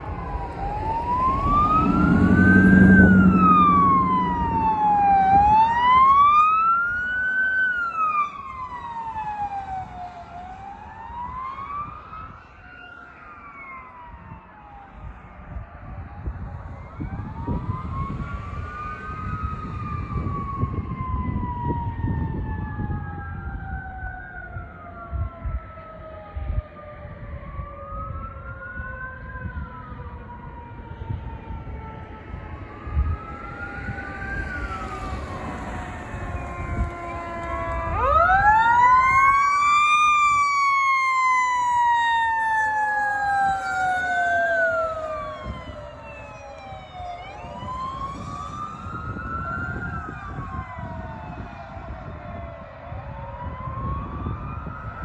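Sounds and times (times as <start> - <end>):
truck engine rumble: 0.0 - 7.8, 29.5 - 40.9, 41.6 - 50.9
siren tone falling in pitch: 0.0 - 9.7, 16.0 - 51.6
fire engine siren wailing: 0.0 - 55.0
second siren sweep: 0.0 - 55.0.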